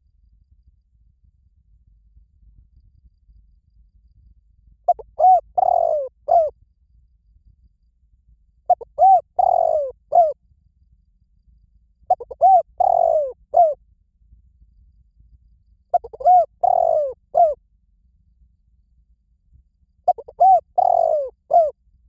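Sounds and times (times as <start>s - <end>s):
dove cooing: 4.9s - 6.5s, 8.7s - 10.4s, 12.1s - 13.8s, 15.9s - 17.6s, 20.1s - 21.7s.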